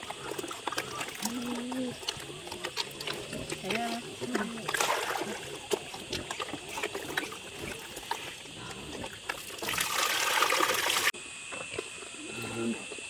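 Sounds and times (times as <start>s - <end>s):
rush of splashing water: 9.5s - 11.1s.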